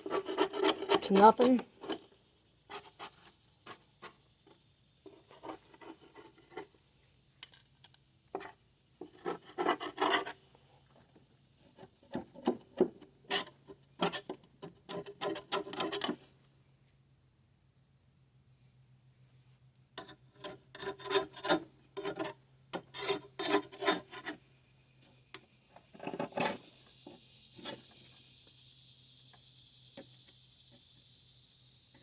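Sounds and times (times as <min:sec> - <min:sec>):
scraper scraping metal mower deck: 0:00.0 - 0:02.1, 0:09.0 - 0:10.4, 0:20.0 - 0:24.4.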